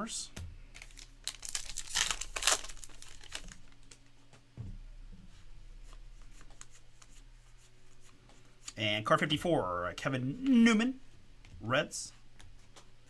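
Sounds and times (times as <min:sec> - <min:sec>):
cards rustling: 0:00.8 - 0:04.0.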